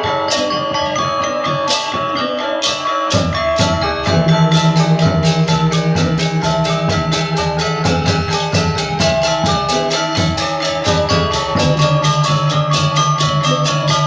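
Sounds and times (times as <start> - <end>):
metallophones struck rapidly: 2.6 - 14.0
low gong tone: 3.3 - 14.0.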